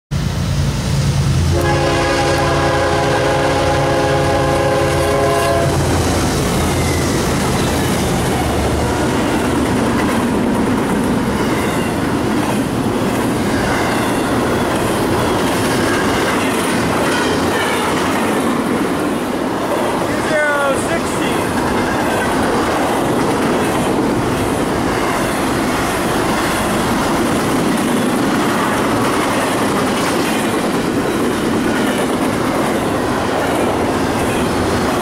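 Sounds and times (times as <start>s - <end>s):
diesel locomotives passing: 0.1s - 35.0s
train wheels on rail: 0.1s - 35.0s
locomotive horn chord: 1.5s - 5.9s.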